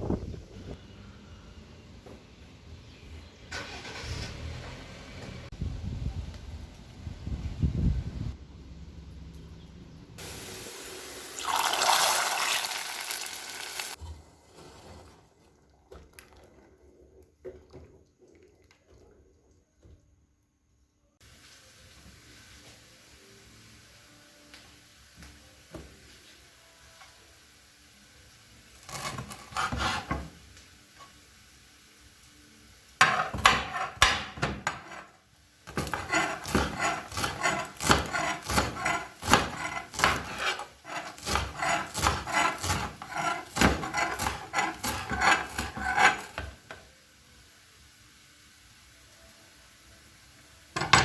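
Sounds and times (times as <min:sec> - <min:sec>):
rasping strokes on food: 0:35.7 - 0:46.4.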